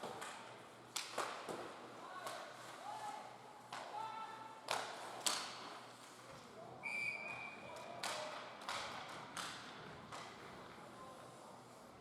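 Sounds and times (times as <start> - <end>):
referee's whistle: 6.8 - 7.4.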